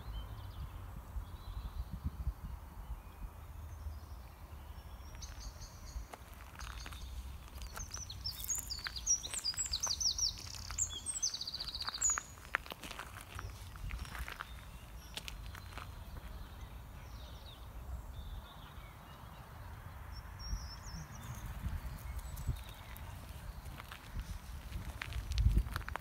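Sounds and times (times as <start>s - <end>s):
songbird chirping and trilling: 0.0s - 25.1s
footsteps crunching on gravel: 6.1s - 16.6s, 22.0s - 26.0s.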